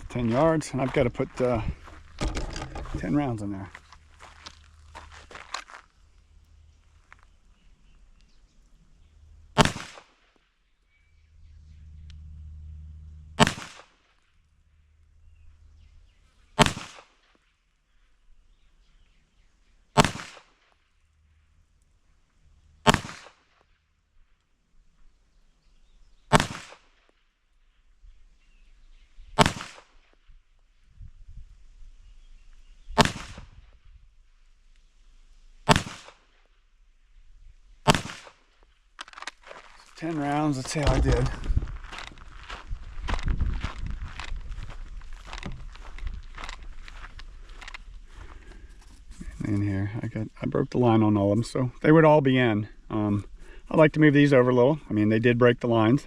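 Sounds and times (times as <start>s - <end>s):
gunshot with ring-out: 9.6s - 10.2s, 13.4s - 14.0s, 16.6s - 17.2s, 20.0s - 20.6s, 22.8s - 23.4s, 26.3s - 26.9s, 29.4s - 30.0s, 33.0s - 33.5s, 35.6s - 36.2s, 37.8s - 38.4s.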